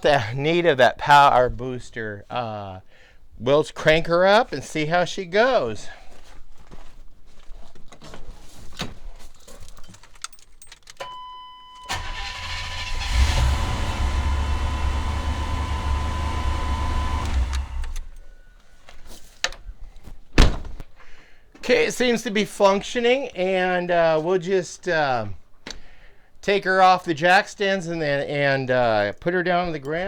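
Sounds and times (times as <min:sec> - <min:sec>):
engine cranking and running: 0:11.9 - 0:18.2.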